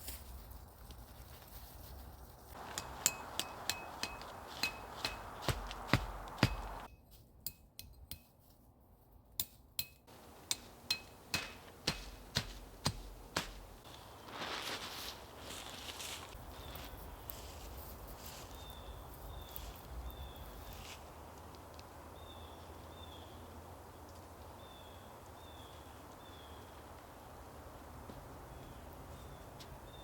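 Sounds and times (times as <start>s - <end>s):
hammer striking metal stake: 2.6s - 8.4s, 9.4s - 13.8s.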